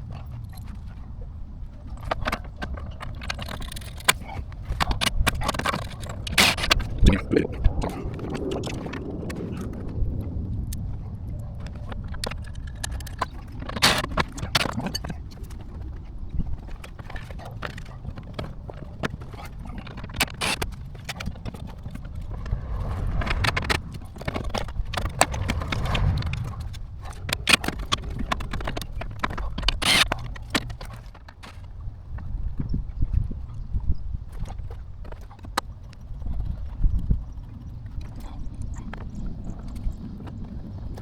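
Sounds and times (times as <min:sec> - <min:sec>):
steady low rumble: 0:17.4 - 0:28.9.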